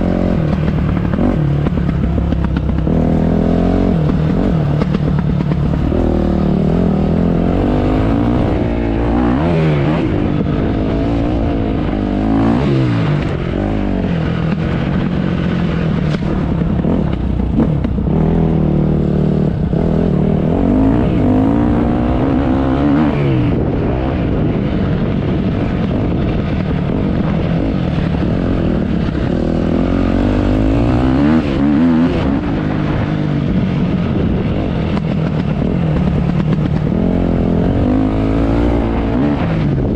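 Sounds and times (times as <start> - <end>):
motocross bike engine revving: 16.8 - 23.7, 28.1 - 33.0.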